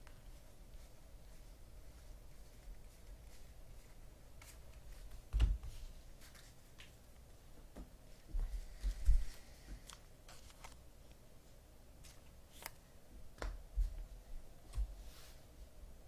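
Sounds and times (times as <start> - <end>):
cards clicking and flicking: 12.5 - 12.8.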